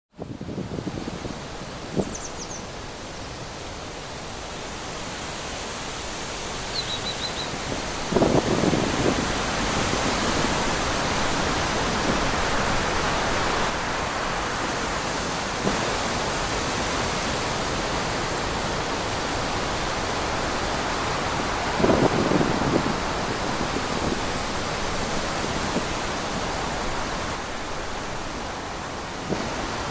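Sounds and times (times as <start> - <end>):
wind blowing through trees: 0.1 - 29.9
faint high chirps: 6.7 - 7.5.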